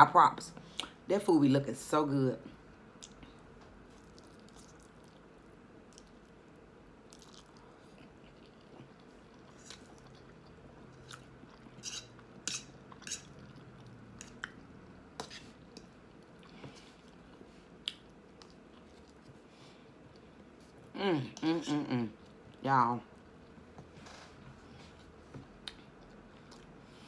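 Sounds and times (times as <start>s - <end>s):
person chewing food: 2.9s - 6.4s, 7.0s - 20.9s, 25.2s - 27.0s.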